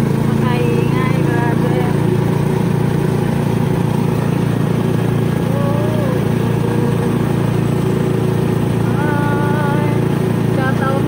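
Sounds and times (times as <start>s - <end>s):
small motorcycle engine running: 0.0s - 11.0s
faint voice: 5.4s - 7.3s.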